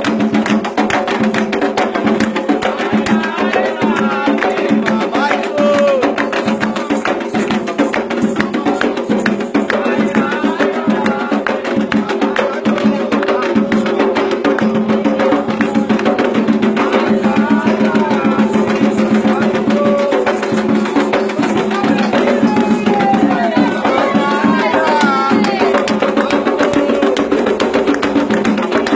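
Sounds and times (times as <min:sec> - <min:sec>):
hand drums: 0:00.0 - 0:28.9
voices singing: 0:00.0 - 0:28.9.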